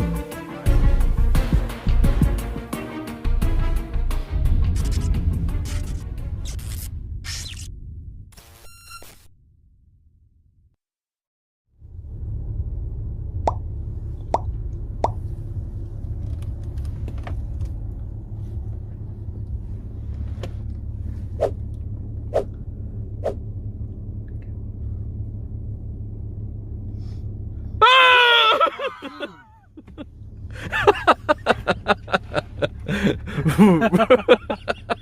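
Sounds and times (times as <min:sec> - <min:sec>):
steady low rumble: 0:03.4 - 0:08.5, 0:11.7 - 0:27.8, 0:29.4 - 0:35.0
water dripping in tunnel: 0:13.4 - 0:13.6.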